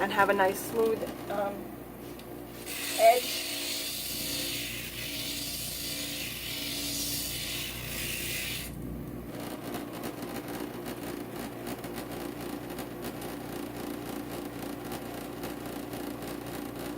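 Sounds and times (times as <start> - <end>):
glass grinder motor running: 2.6 - 8.8.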